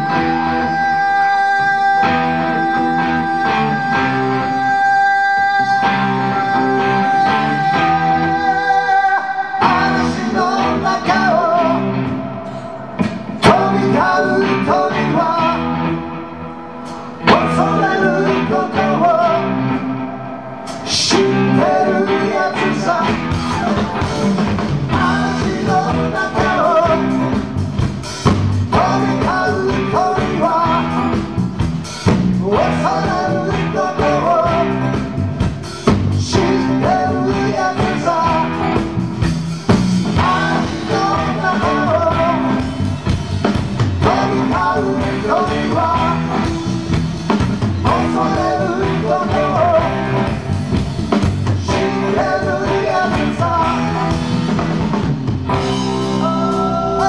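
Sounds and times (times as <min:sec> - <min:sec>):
person singing: 0:00.0 - 0:27.6, 0:28.7 - 0:31.5, 0:32.4 - 0:39.0, 0:40.1 - 0:43.1, 0:43.9 - 0:50.7, 0:51.4 - 0:54.6, 0:55.9 - 0:57.0
electric guitar: 0:00.0 - 0:57.0
drum kit: 0:09.6 - 0:57.0.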